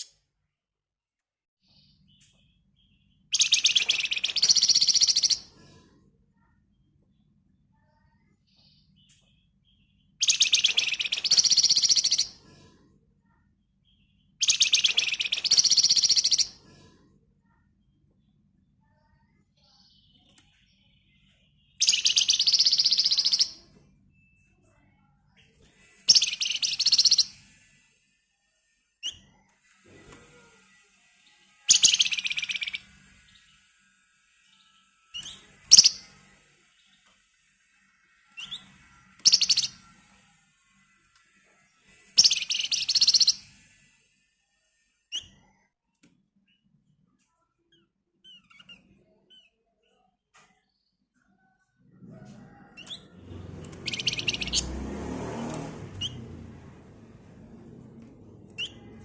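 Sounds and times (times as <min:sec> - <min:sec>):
bird chirp: 0:01.6 - 0:05.5, 0:06.4 - 0:12.4, 0:13.2 - 0:16.6, 0:17.4 - 0:27.8, 0:31.2 - 0:33.8, 0:34.4 - 0:39.9, 0:41.9 - 0:43.8, 0:52.2 - 0:54.9, 0:55.6 - 0:56.4, 0:58.5 - 0:59.0
songbird singing rapid trills: 0:02.8 - 0:05.4, 0:09.7 - 0:12.3, 0:14.4 - 0:16.5, 0:21.7 - 0:23.6, 0:26.1 - 0:27.3, 0:31.7 - 0:32.9, 0:35.2 - 0:36.1, 0:39.2 - 0:39.8, 0:42.2 - 0:43.4.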